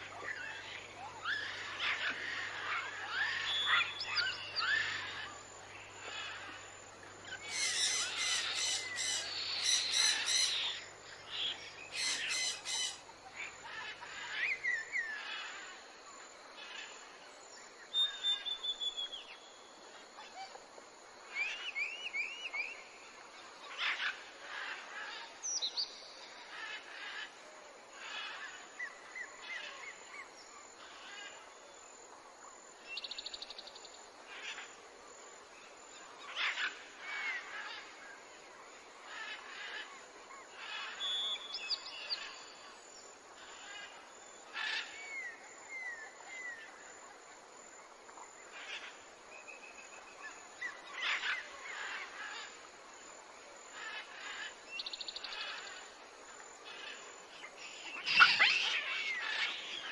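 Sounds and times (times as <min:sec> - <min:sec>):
birds chirping and whistling: 0:57.6 - 0:59.9
bird trilling: 0:58.0 - 0:59.2.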